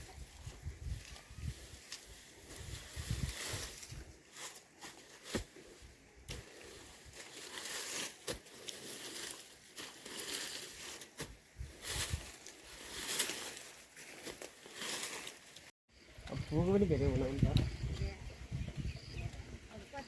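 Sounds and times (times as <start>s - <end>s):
rustling and crinkling: 0.0s - 15.7s.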